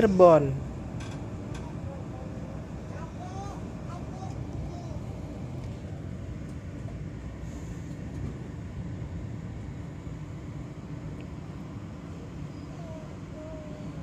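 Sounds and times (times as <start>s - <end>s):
train carriage rumble: 0.0s - 14.0s.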